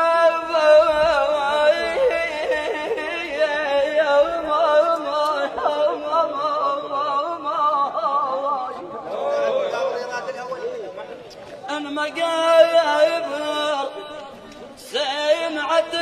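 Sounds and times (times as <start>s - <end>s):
person singing wordless melisma: 0.0s - 9.1s.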